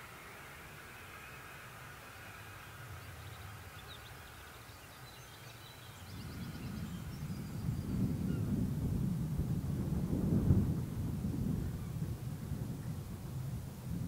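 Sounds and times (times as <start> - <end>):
small birds chirping: 0.0 - 8.6
distant train rumble: 0.0 - 14.0.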